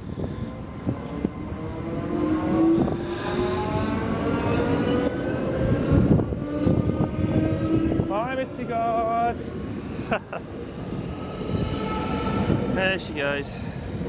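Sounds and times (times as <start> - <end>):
electric train motors whining: 0.0 - 9.4
train wheels rumbling: 0.0 - 14.0.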